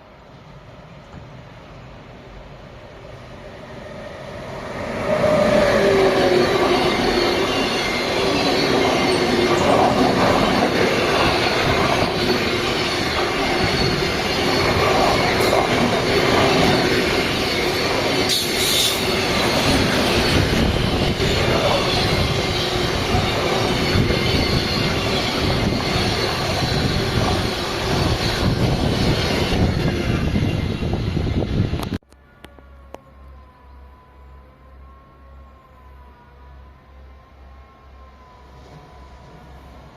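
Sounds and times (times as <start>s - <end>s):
train wheels on rails: 2.6s - 32.0s
high wheel squealing: 3.7s - 31.8s.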